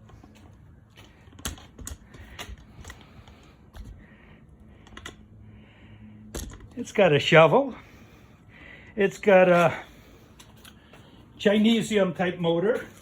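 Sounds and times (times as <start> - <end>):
hands clicking and tapping parts: 0.0 - 4.0, 4.8 - 5.2.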